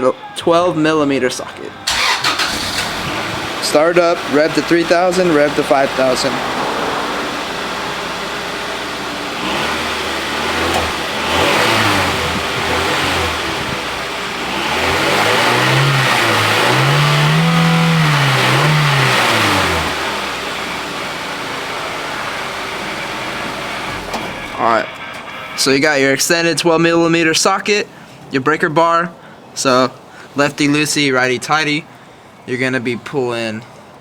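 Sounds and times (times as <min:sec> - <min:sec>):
car engine idling and revving: 0:01.9 - 0:25.8.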